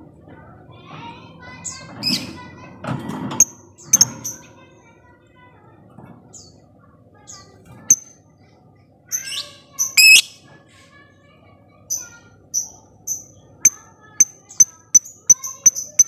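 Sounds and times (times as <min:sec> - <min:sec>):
lovebird chirping: 0:09.2 - 0:10.4
lovebird harsh chattering: 0:09.2 - 0:10.4.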